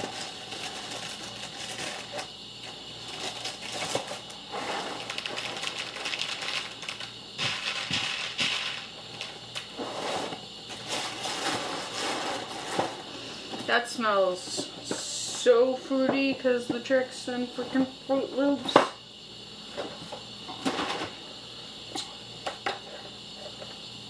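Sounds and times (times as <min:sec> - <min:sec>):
cereal rattling in a bowl: 0:00.0 - 0:02.3, 0:03.0 - 0:12.9.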